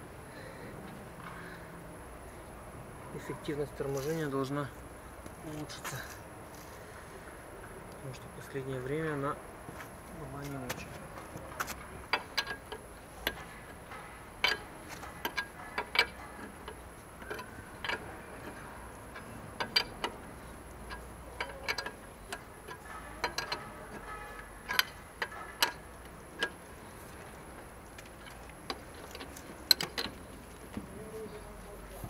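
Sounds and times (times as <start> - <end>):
wheel bolts tapping: 10.4 - 31.2
metallic clicks of hand tools: 11.6 - 30.7.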